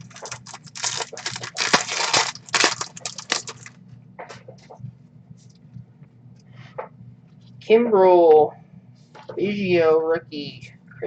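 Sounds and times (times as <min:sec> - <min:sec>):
card handling rustles: 0:00.0 - 0:03.7
foil wrapper crinkling: 0:00.0 - 0:03.8.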